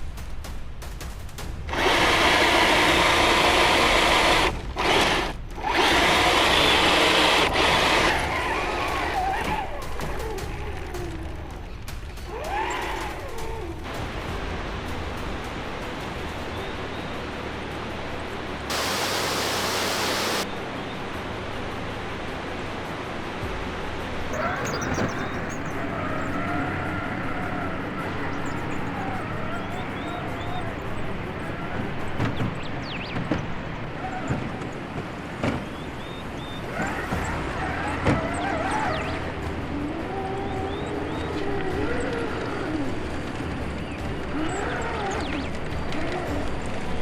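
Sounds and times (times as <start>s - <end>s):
electric motor and gearbox whirring: 1.7s - 10.5s, 18.7s - 20.5s
waterfall rushing: 18.7s - 20.5s, 24.0s - 34.0s.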